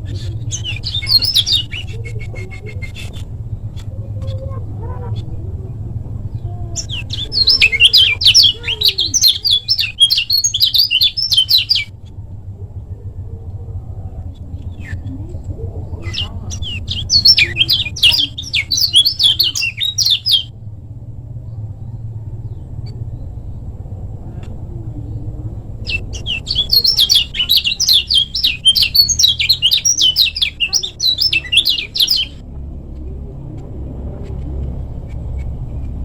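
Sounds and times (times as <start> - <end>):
bird singing rapid chirps: 0.0 - 5.4, 6.2 - 12.0, 14.4 - 20.5, 25.0 - 32.5
steady low rumble: 0.0 - 36.0.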